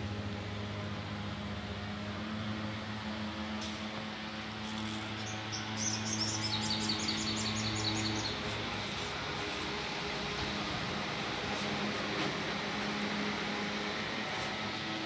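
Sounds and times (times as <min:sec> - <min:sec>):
small bird chirping: 0:04.8 - 0:08.4.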